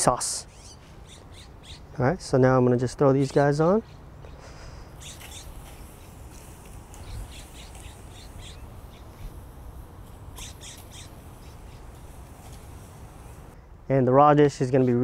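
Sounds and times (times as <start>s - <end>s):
faint outdoor hiss: 0.0s - 15.0s
high-pitched bird squawks: 0.4s - 1.9s, 4.9s - 5.6s, 10.4s - 11.8s.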